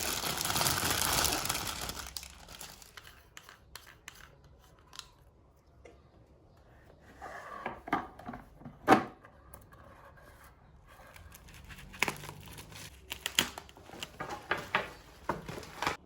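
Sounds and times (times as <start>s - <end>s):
packaging rustling and tearing: 0.0s - 3.2s, 11.2s - 16.0s.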